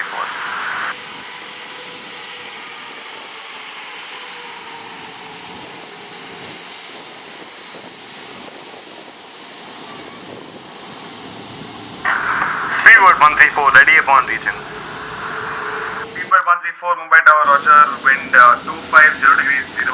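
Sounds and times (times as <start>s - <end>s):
jet engines rushing: 0.0s - 16.5s, 17.4s - 19.9s
faint engine whine: 0.0s - 19.9s.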